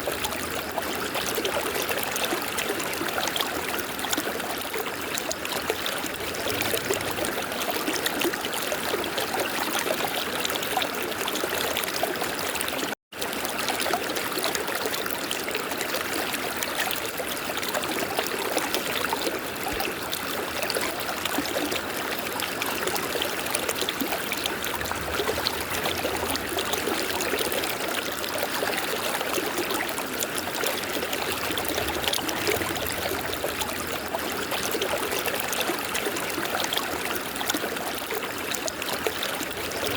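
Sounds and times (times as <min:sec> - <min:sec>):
river flowing over rocks: 0:19.5 - 0:39.9.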